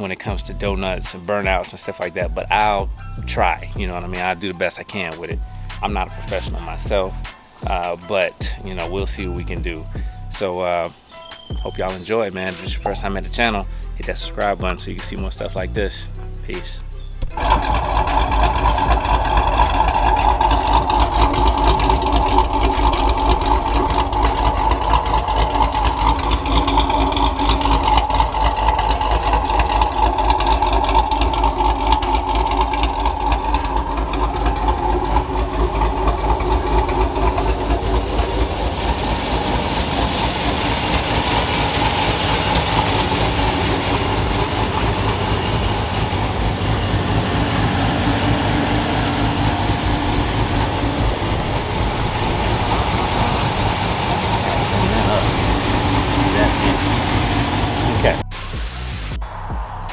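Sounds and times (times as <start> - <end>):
car engine idling: 0.0 - 59.9
hiss: 50.7 - 59.4.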